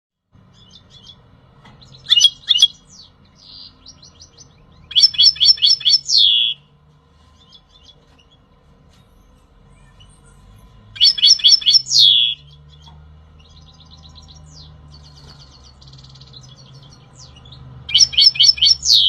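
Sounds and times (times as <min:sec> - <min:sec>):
goldfinch singing: 0:00.4 - 0:08.5, 0:09.7 - 0:19.0.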